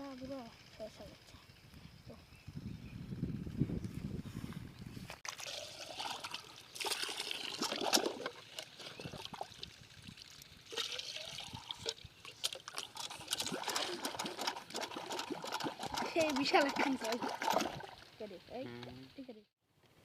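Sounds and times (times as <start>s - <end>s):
water trickling and splashing: 5.2s - 18.2s.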